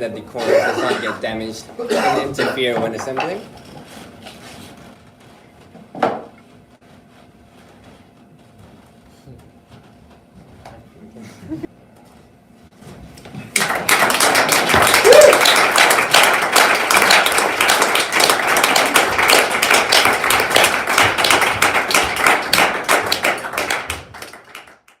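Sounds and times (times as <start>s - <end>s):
group applause: 13.5s - 25.0s.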